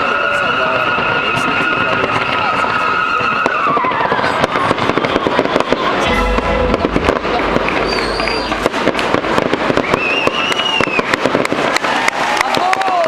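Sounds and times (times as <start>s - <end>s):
firework bangs and crackling: 0.0s - 13.0s
firework whistling: 0.0s - 13.0s
low rumble: 6.0s - 9.4s.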